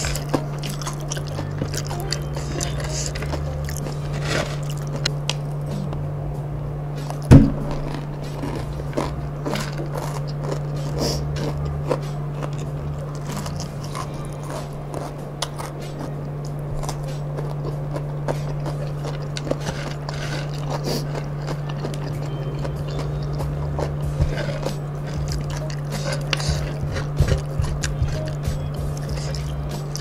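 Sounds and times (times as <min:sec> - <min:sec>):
chewing crunchy food: 0:00.0 - 0:06.0, 0:06.9 - 0:30.0
steady low hum: 0:00.0 - 0:30.0.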